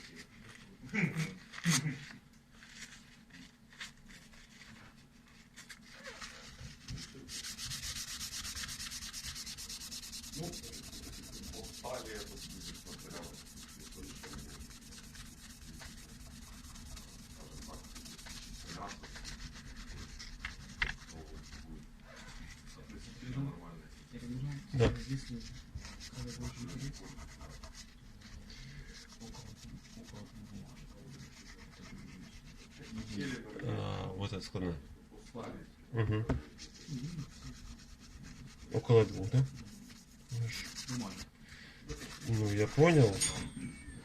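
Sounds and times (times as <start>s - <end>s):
scratchy rubbing on a surface: 2.6s - 23.4s, 24.2s - 33.5s, 36.5s - 41.3s, 41.9s - 43.4s.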